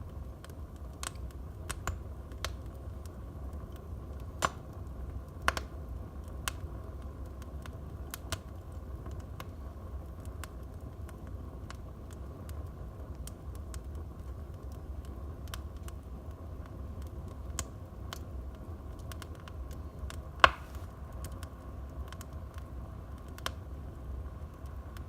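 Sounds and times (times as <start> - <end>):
wood fire crackling and popping: 0.0 - 25.0
loud sharp fire pop: 20.4 - 20.9.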